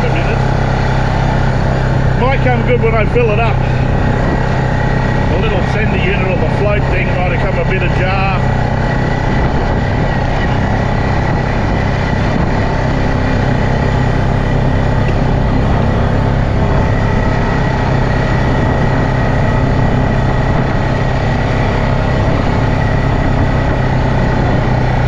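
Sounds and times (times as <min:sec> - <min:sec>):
quad bike engine running: 0:00.0 - 0:25.0.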